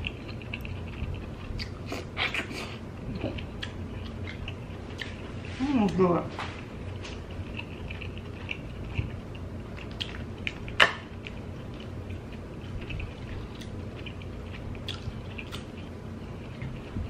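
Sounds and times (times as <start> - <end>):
wet chewing: 0.0 - 17.0.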